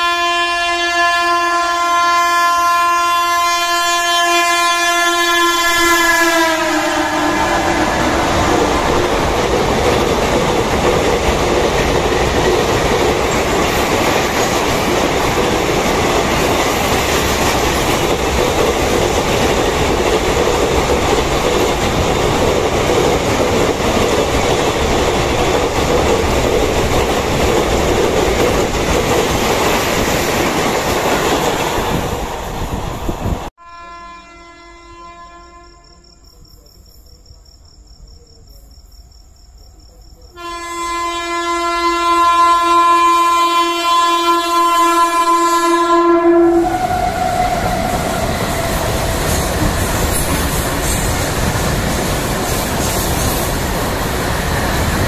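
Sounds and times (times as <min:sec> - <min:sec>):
train horn: 0:00.0 - 0:09.0, 0:33.6 - 0:36.0, 0:40.4 - 0:50.3
train wheels running on rails: 0:07.3 - 0:33.5, 0:46.6 - 0:55.0.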